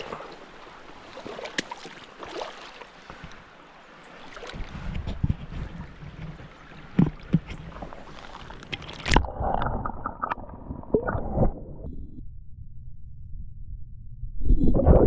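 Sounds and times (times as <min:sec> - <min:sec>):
water sloshing and gurgling: 0:00.0 - 0:13.4, 0:14.4 - 0:15.0
low steady rumble: 0:11.4 - 0:15.0.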